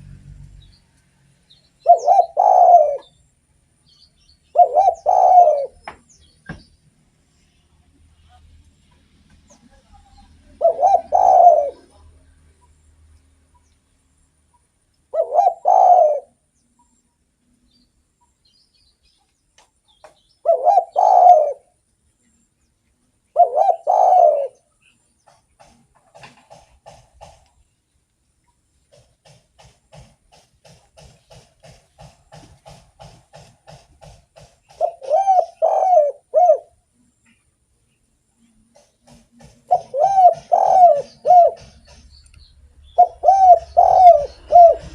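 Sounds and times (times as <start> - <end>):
dove cooing: 1.8 - 3.2, 4.5 - 6.0, 10.1 - 12.3, 15.1 - 16.5, 20.4 - 21.8, 23.3 - 24.7, 34.6 - 37.4, 38.4 - 42.1, 43.0 - 44.9.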